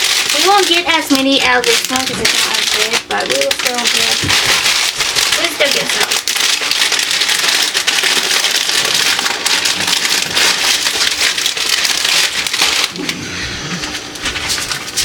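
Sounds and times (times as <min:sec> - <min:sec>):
chip bag crinkling: 0:00.0 - 0:13.2, 0:13.8 - 0:15.0.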